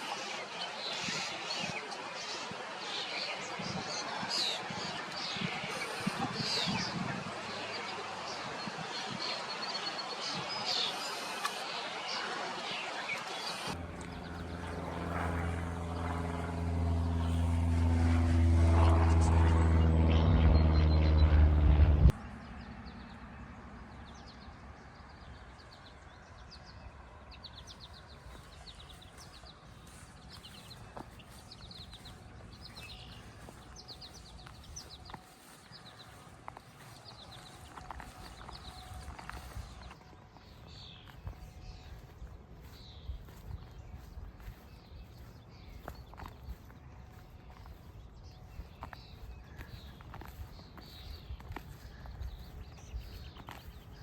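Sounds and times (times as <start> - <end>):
birds calling: 0.0 - 24.5, 27.6 - 54.0
low background rumble: 13.7 - 26.2.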